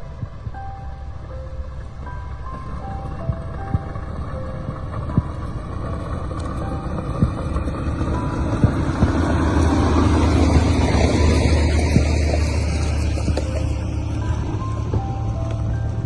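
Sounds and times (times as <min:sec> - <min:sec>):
heavy machine engine rumbling: 0:00.0 - 0:16.0
soft background music: 0:00.0 - 0:16.0
scattered knocks: 0:01.9 - 0:15.8.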